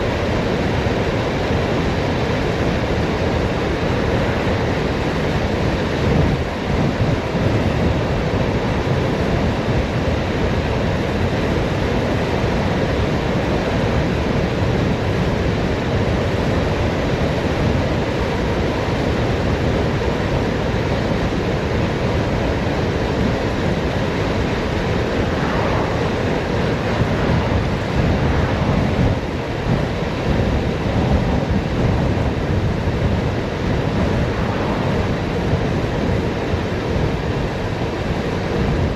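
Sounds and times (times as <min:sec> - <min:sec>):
wind rushing over microphone: 0:00.0 - 0:38.9
road rumble: 0:15.9 - 0:38.9.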